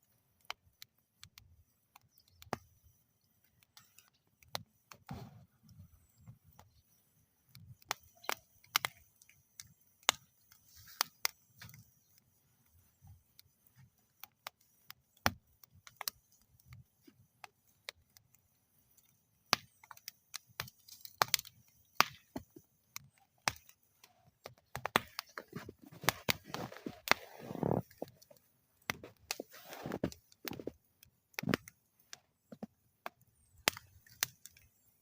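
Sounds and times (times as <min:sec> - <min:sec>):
wood fire crackling and popping: 0:00.0 - 0:35.0.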